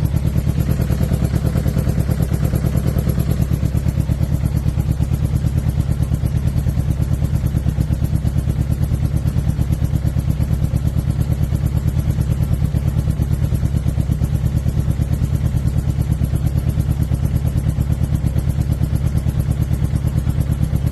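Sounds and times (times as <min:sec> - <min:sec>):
motorcycle engine idling: 0:00.0 - 0:20.9.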